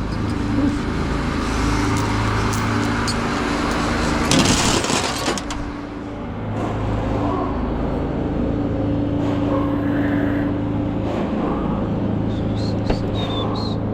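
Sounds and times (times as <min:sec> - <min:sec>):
truck engine humming: 0:00.0 - 0:09.1
road noise: 0:00.0 - 0:13.9.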